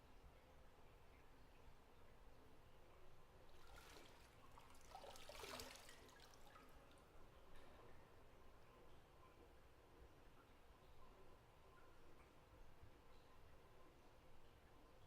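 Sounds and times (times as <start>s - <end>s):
bathwater sloshing and trickling: 3.4s - 7.8s.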